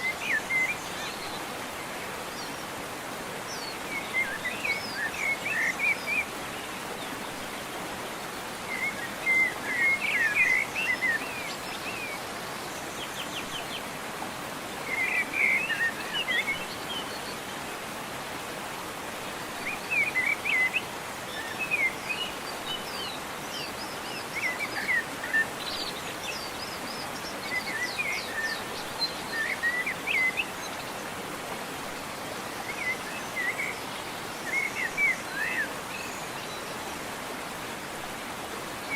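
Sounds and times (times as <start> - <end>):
waterfall rushing: 0.0 - 38.9
songbird chirping: 19.5 - 31.2.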